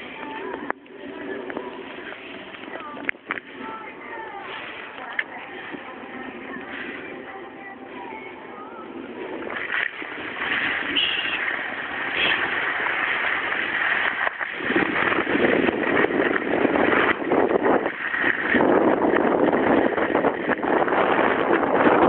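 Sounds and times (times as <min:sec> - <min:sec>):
wind buffeting microphone: 0:09.0 - 0:22.0
skis scraping over snow: 0:09.6 - 0:22.0.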